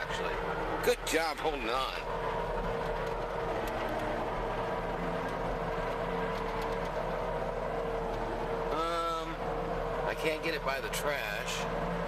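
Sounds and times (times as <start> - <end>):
constant whining tone: 0.0 - 12.0
loader engine running: 0.0 - 12.0.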